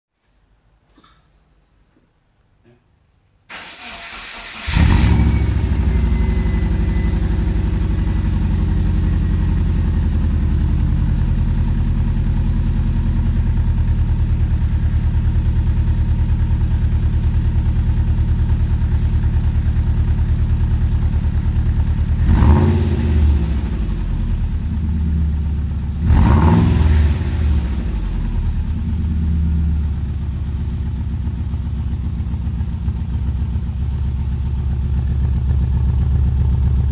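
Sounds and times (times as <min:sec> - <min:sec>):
car engine cranking and idling: 0:03.5 - 0:36.9
engine revving blips: 0:04.6 - 0:09.6, 0:22.2 - 0:24.3.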